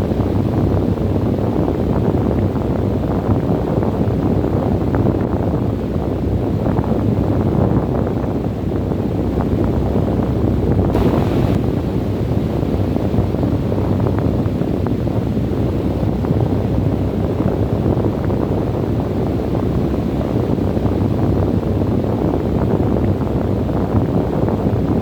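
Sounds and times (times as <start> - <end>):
wind buffeting microphone: 10.8 - 25.0.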